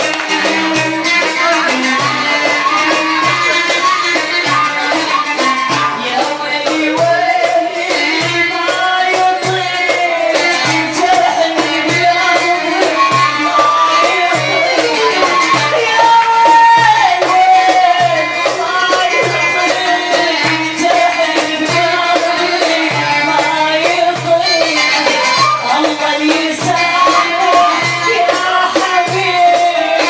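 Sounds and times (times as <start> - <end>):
steady percussion beat: 0.0 - 30.0.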